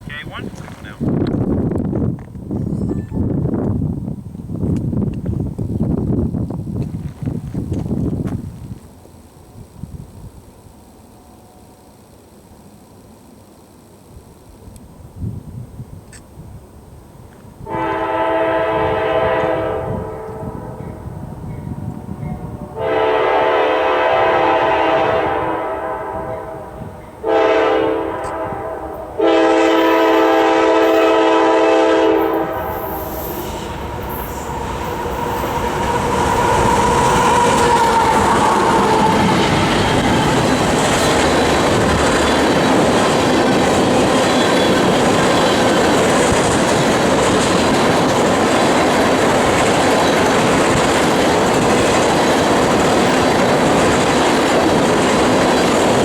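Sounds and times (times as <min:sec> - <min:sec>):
train wheels rumbling over rails: 0:00.0 - 0:56.0
locomotive air horn blasts: 0:17.6 - 0:20.8, 0:22.3 - 0:39.7.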